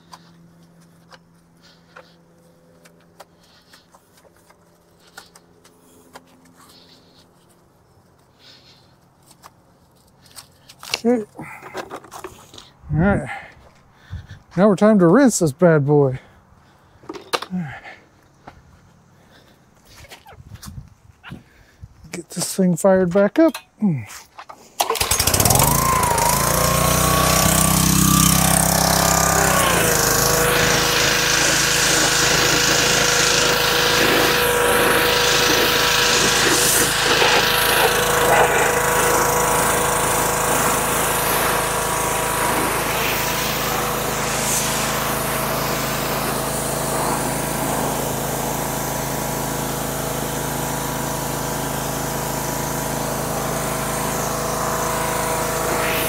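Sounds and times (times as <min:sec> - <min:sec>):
pressure washer engine running: 0:00.0 - 0:07.2, 0:24.8 - 0:56.0.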